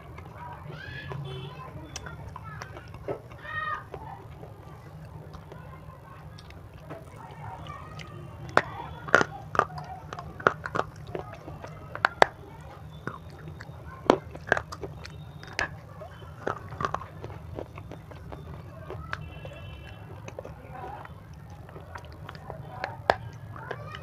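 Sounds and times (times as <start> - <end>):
crunchy biting and chewing: 0.0 - 24.0
soft mouth sounds: 6.2 - 24.0.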